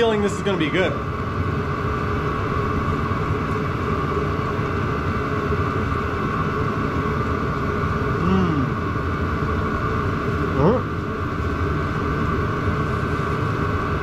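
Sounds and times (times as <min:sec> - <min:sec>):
diesel heater whirring hum: 0:00.0 - 0:14.0
hum rising and falling in pitch: 0:07.8 - 0:09.2, 0:10.4 - 0:11.1.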